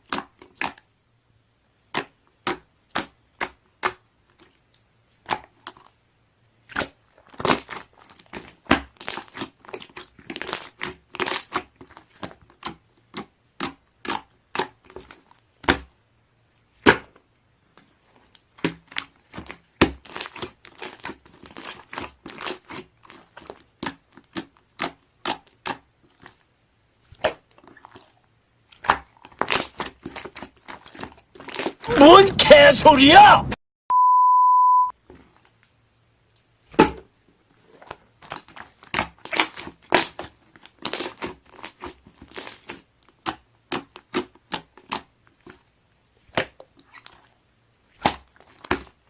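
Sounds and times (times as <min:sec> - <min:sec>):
slime clicking and popping: 0:28.8 - 0:31.8, 0:38.2 - 0:45.6.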